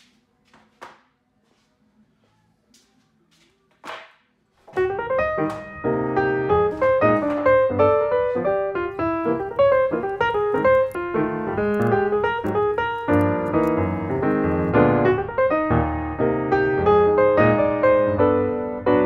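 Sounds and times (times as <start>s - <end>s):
background piano music: 4.8s - 19.0s.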